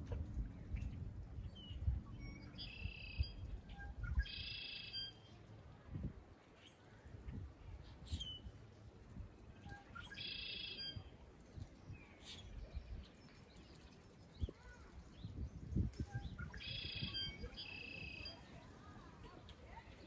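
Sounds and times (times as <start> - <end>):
short high bird chirps: 2.2 - 5.3, 9.6 - 11.0, 15.3 - 18.5.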